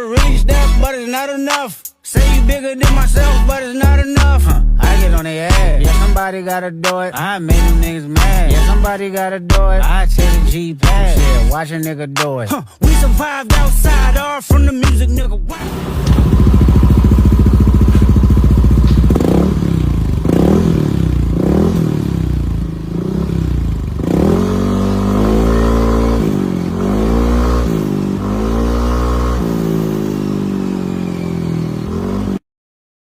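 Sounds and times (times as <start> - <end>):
scooter engine revving: 15.5 - 32.4.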